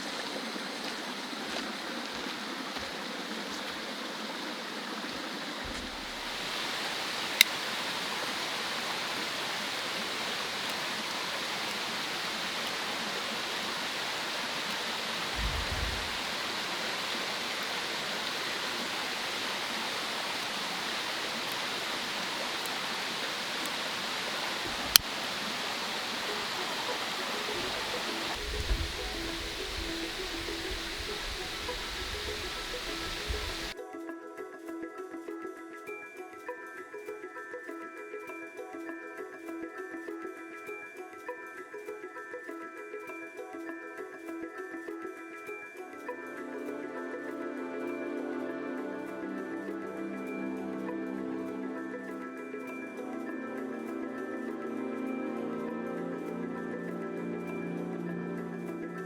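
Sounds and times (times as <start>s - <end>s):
stream water rushing: 0.0s - 33.8s, 46.3s - 59.0s
soft low thump: 15.4s - 16.3s.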